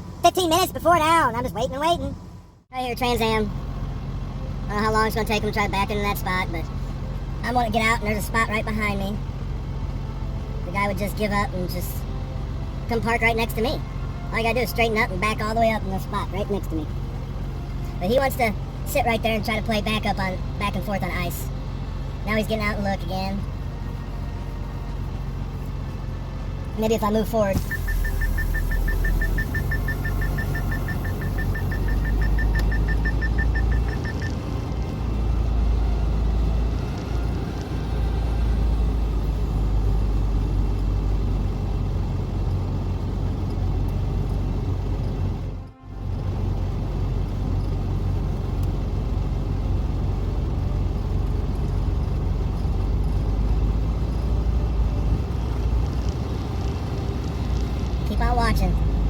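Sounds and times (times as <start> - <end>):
truck engine rumbling: 0.0 - 59.0
rapid electronic beeps: 27.6 - 34.3.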